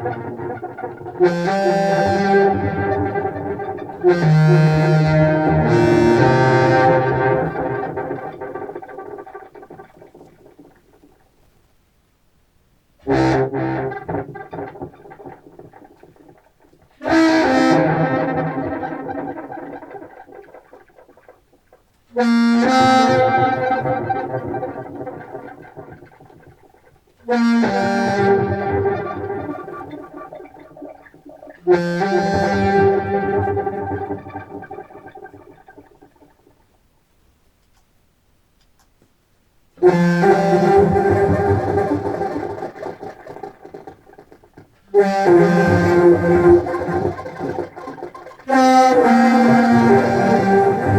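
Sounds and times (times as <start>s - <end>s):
clarinet notes with echoing delay: 0.0s - 9.0s, 17.0s - 20.0s, 22.2s - 26.0s, 27.3s - 36.0s, 39.8s - 43.5s, 44.9s - 50.9s.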